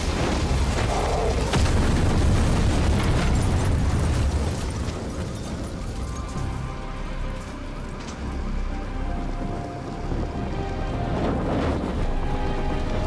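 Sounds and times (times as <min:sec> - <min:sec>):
truck explosion rumbling blast: 0:00.0 - 0:06.3.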